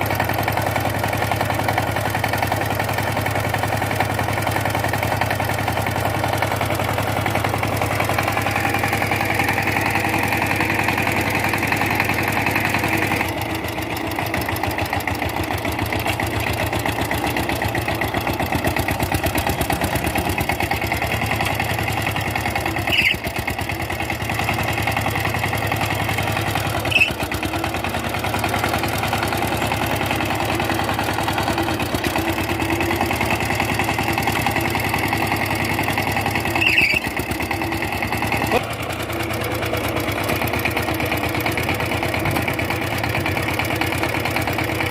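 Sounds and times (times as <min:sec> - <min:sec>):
tiller diesel engine running: 0:00.0 - 0:44.9.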